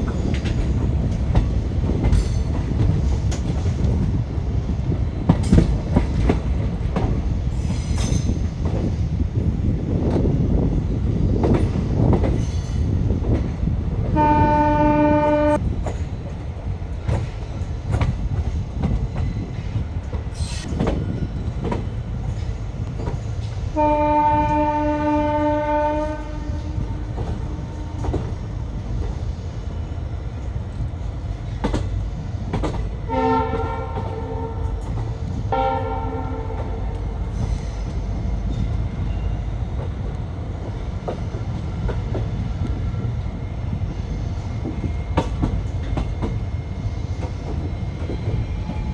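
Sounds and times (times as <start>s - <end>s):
train rumbling: 0.0s - 48.9s
lower train horn: 14.0s - 15.7s, 23.7s - 28.8s, 33.0s - 39.5s
train horn blasts: 14.2s - 15.6s, 23.8s - 28.4s, 33.1s - 37.2s.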